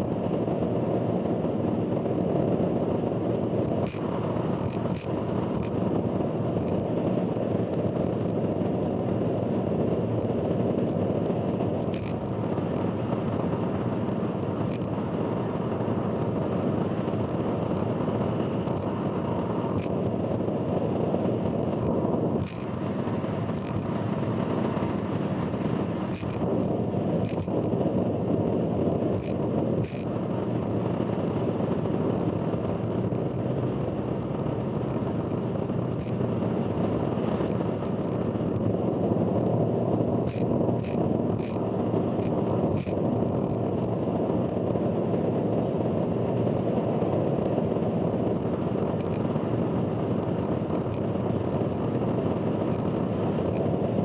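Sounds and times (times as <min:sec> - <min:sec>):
short clicks and ticks: 0:21.4 - 0:22.7, 0:27.2 - 0:28.1, 0:29.1 - 0:30.8.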